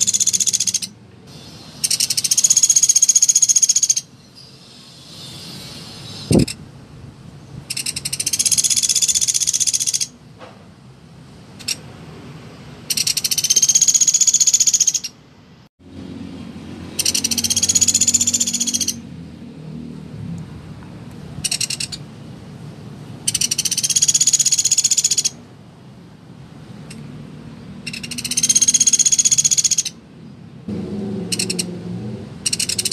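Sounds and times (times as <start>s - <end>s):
woodpecker rattling trills: 0.0s - 1.0s, 1.8s - 4.1s, 7.7s - 10.2s, 12.9s - 15.2s, 16.9s - 19.0s, 21.4s - 22.0s, 23.3s - 25.4s, 27.8s - 30.0s, 31.3s - 31.7s, 32.4s - 32.9s.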